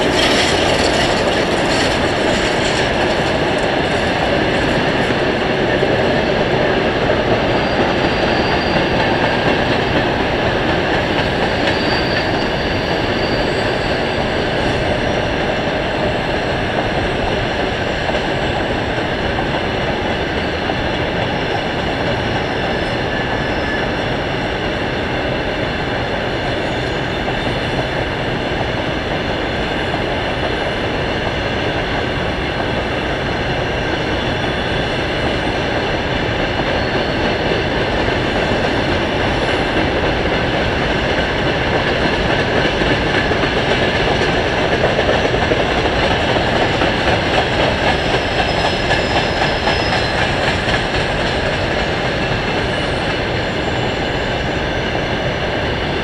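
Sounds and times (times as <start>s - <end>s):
train wheels clattering over rail joints: 0.0s - 22.9s, 32.5s - 54.0s
high-pitched wheel squeal: 7.5s - 9.7s, 11.0s - 14.7s.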